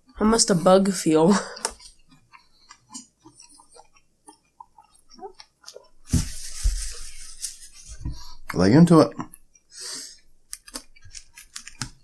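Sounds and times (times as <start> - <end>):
chewing with wet mouth clicks: 1.5 - 6.0
rustling: 5.7 - 8.4.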